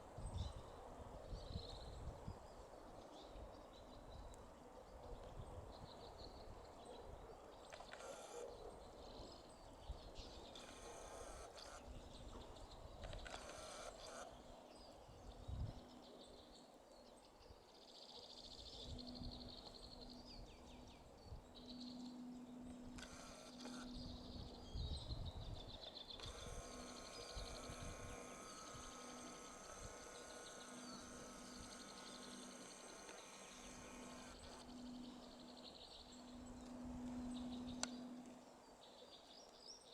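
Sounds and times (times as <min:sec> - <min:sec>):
songbird chirps and trill: 0:00.2 - 0:39.9
small birds twittering: 0:01.3 - 0:39.9
short bursts of noise: 0:07.7 - 0:08.5, 0:10.5 - 0:12.0, 0:13.0 - 0:14.4, 0:22.8 - 0:24.4, 0:26.2 - 0:38.3
insect buzzing: 0:26.2 - 0:38.4.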